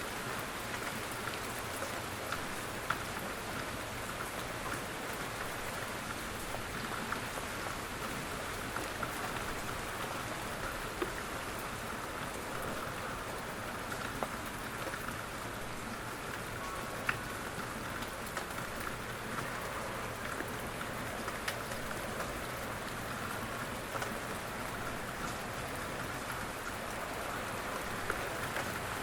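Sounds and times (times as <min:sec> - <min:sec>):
steady rain: 0:00.0 - 0:29.0.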